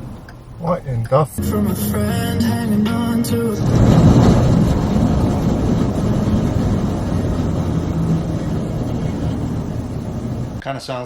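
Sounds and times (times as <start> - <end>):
road noise: 0.0 - 10.8
metallic grinding of hubs: 3.2 - 10.6.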